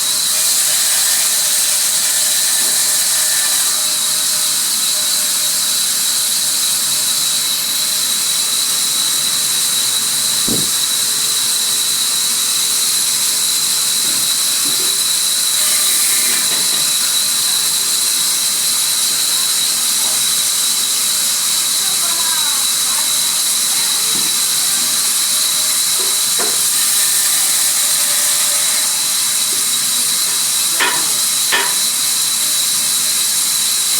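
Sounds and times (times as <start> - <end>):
sawmill saw cutting wood: 0.0 - 33.9
low knock: 10.5 - 10.8.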